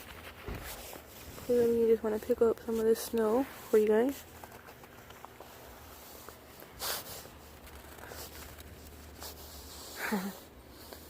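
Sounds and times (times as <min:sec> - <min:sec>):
faint handling noises: 0:00.0 - 0:11.0
person humming: 0:10.0 - 0:10.4.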